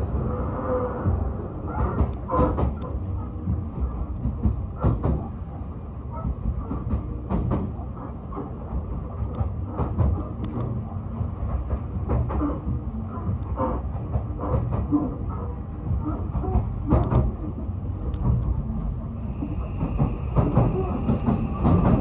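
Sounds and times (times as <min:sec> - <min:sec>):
train rumble inside carriage: 0:00.0 - 0:22.0
wheels clicking on rails: 0:06.1 - 0:22.0.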